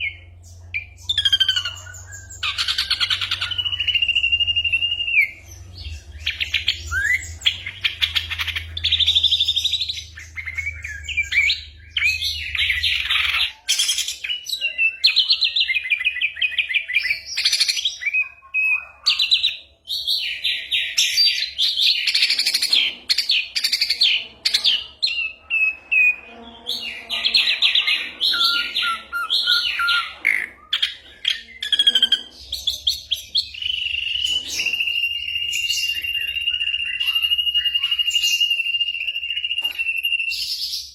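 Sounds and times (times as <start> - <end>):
bird singing trills and whistles: 0.0 - 40.9.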